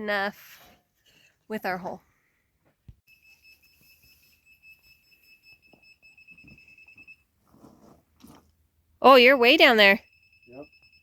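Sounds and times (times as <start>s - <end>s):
faint high steady beep: 3.1s - 7.4s, 9.0s - 11.0s.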